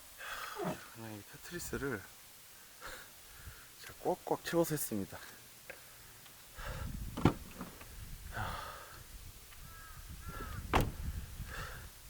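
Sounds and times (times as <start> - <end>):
car doors slamming: 7.2 - 7.8, 10.6 - 11.1.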